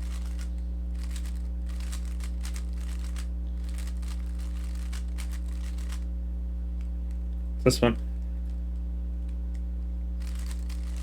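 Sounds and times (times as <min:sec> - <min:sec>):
steady low hum: 0:00.0 - 0:11.0
plastic puzzle cube clicking: 0:01.0 - 0:06.0, 0:10.2 - 0:11.0.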